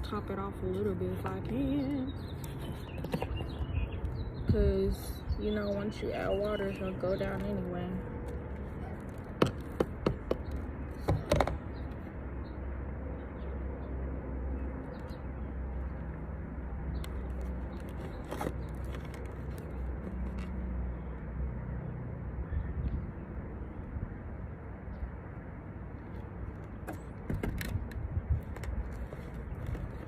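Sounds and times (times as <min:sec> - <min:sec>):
plastic pots knocking and clicking: 0:09.2 - 0:11.7.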